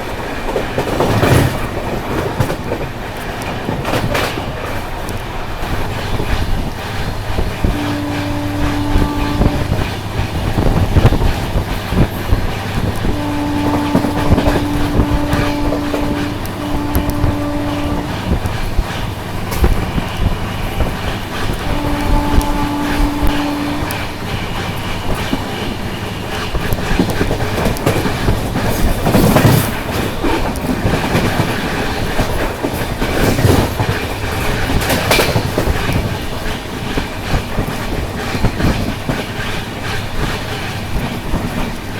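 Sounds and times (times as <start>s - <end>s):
train wheels clattering on rails: 0.0s - 41.9s
train horn blasts: 7.3s - 28.0s.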